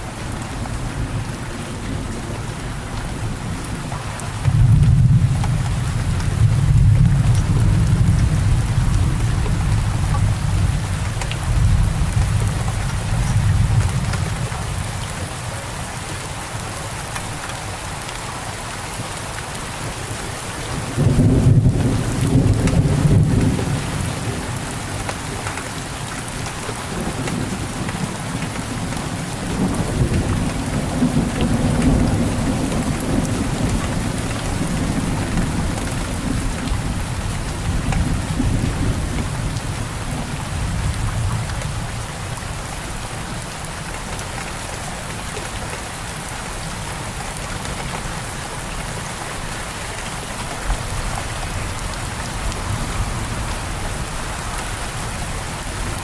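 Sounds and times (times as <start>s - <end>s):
steady rain falling: 0.0s - 56.0s
thunder rumbling: 20.8s - 24.8s, 26.9s - 42.0s.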